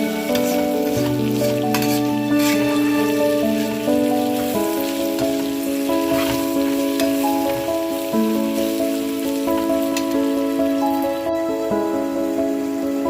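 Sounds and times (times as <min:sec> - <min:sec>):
background music: 0:00.0 - 0:13.0
vegetables sizzling in a pan: 0:00.0 - 0:13.0.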